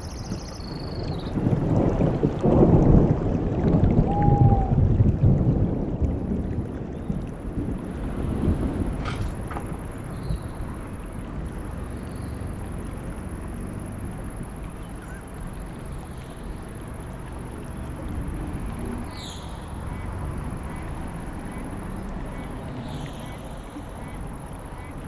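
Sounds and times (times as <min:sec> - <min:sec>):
low outdoor rumble: 0:00.9 - 0:25.0.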